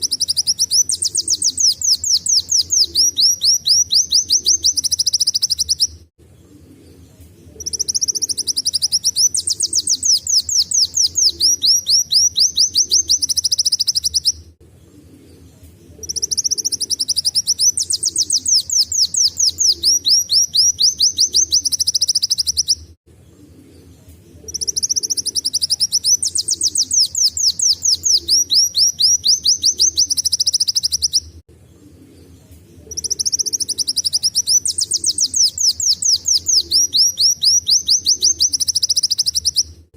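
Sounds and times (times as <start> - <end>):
bird singing high trills: 0.0 - 6.0, 7.6 - 14.4, 16.0 - 22.8, 24.4 - 31.3, 32.8 - 39.8.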